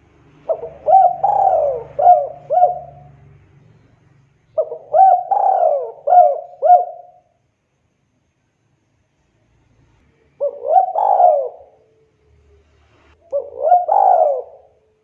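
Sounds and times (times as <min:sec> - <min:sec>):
dove cooing: 0:00.4 - 0:03.2, 0:04.6 - 0:07.4, 0:10.3 - 0:11.9, 0:13.2 - 0:15.0.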